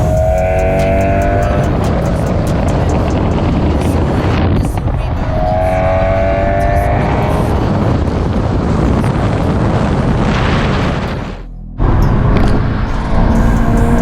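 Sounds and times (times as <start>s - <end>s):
music: 0.0s - 5.6s, 11.4s - 14.0s
car engine and exhaust revving: 0.0s - 14.0s.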